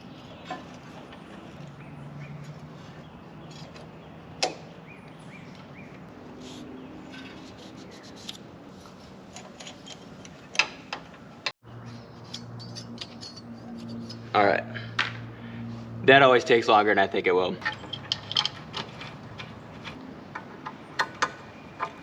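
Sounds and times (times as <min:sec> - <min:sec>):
metal tools clicking and tapping: 0:12.2 - 0:14.3, 0:17.6 - 0:22.0.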